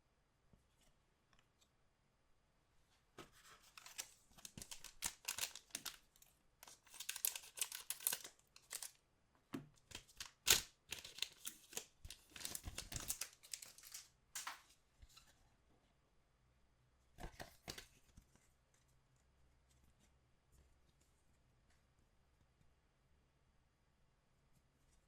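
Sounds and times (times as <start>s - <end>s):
wrappers crinkling and tearing: 3.7s - 9.0s, 9.9s - 14.6s.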